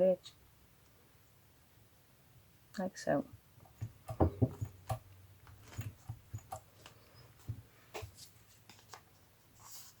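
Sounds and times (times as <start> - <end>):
paper and card tapping: 3.6 - 9.1.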